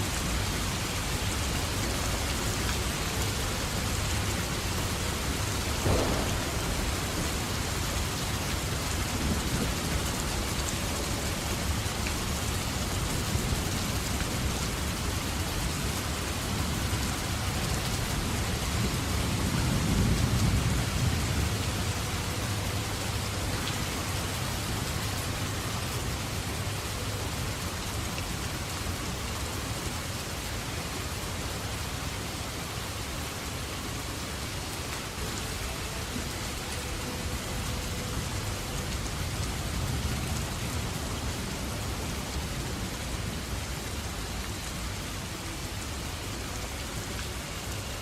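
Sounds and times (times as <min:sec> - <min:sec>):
heavy rain on leaves: 0:00.0 - 0:48.0
low thunder rumble: 0:05.2 - 0:10.2.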